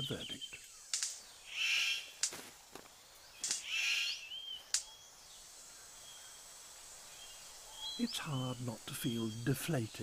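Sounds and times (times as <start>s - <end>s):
faint forest background: 0.0s - 10.0s
sharp click: 0.9s - 1.2s, 3.4s - 3.7s
bird harsh buzzy call: 1.5s - 2.1s, 3.4s - 4.2s.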